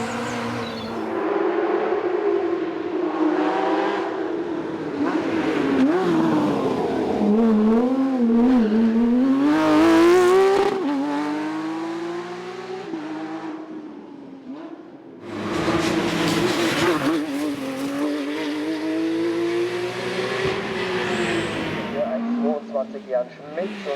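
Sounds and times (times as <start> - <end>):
racing car engine revving: 0.0 - 13.8, 14.6 - 23.9.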